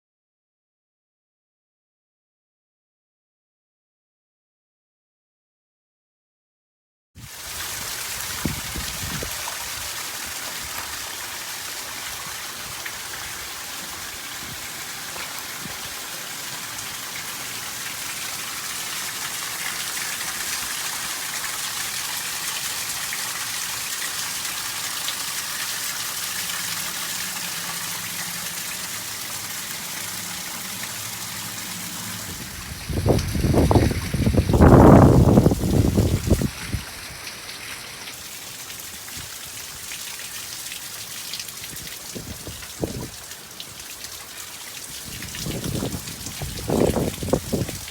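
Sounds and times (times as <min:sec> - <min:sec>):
heavy rain falling: 0:07.3 - 0:47.9.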